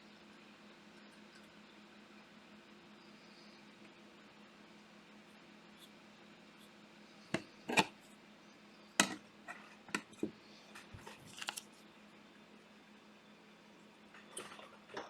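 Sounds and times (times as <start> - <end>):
low room hum: 0.0 - 15.0
plastic packaging clicks and crinkles: 10.8 - 11.8.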